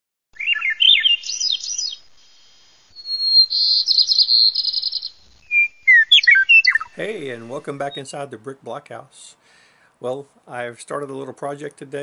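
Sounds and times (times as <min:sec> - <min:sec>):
songbird singing: 0:00.4 - 0:08.4.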